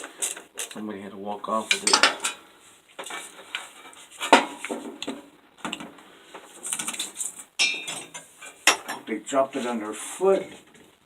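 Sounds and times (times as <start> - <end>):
metal parts clinking: 1.7 - 2.4.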